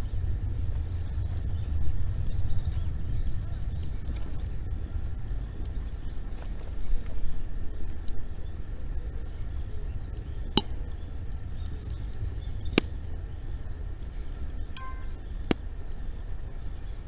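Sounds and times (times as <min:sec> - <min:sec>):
bonfire crackling: 0:00.0 - 0:17.0
fire low rumble: 0:00.0 - 0:17.0
sharp fire pops: 0:10.1 - 0:16.2.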